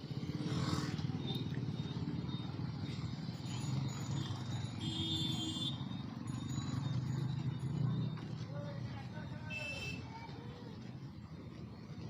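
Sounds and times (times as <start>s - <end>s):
motorcycle engine running: 0.0s - 9.3s.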